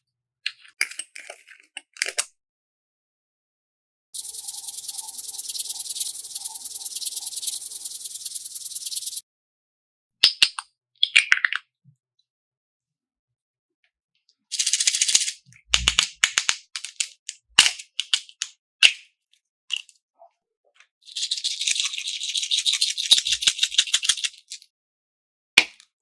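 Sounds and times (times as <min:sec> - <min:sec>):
small hard pieces clicking and rattling: 0:14.5 - 0:18.5, 0:21.1 - 0:24.7.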